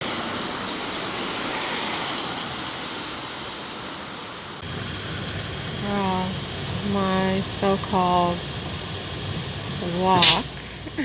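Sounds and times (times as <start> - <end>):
rain hissing: 0.0 - 11.0
low rumble: 4.6 - 11.0.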